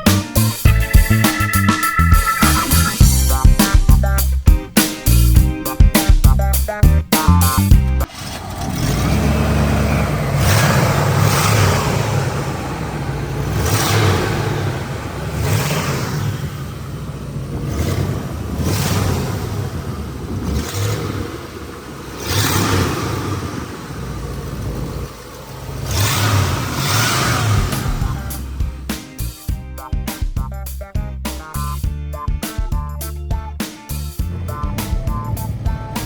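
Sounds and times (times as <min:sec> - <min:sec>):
car engine revving: 0:07.4 - 0:29.6, 0:34.2 - 0:36.0.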